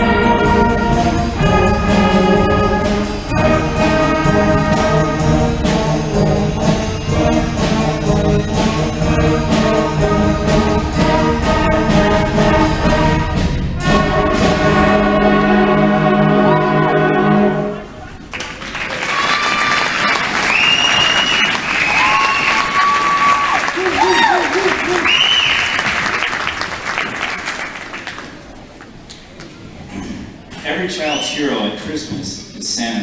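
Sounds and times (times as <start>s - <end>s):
percussion beat: 0.0s - 14.5s
concert band playing: 0.0s - 18.2s.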